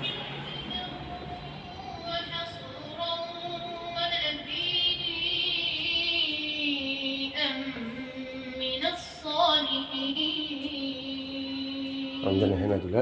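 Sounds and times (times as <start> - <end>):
person chanting melodically: 0.0 - 12.9.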